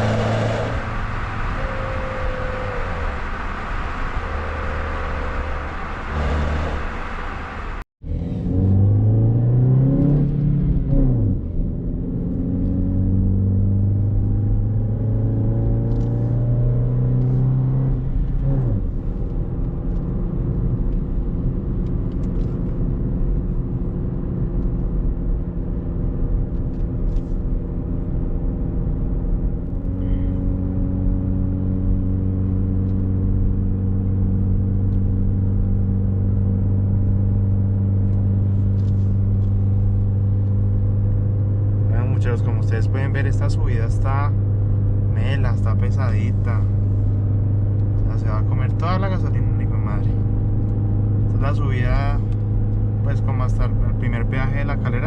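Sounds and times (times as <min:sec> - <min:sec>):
car engine revving under load: 0:00.0 - 0:20.1.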